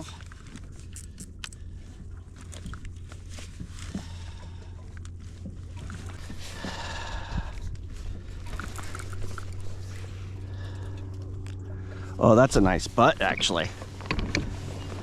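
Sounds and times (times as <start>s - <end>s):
water sloshing against kayak hull: 0.0s - 15.0s.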